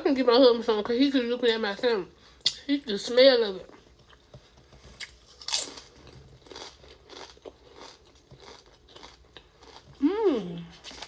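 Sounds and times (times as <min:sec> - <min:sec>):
crunchy bites and chewing: 0:05.0 - 0:10.0.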